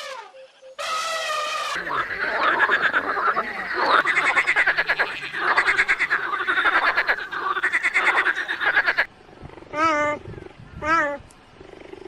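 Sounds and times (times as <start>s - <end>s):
animal calls in pulsed trills: 1.8s - 10.4s.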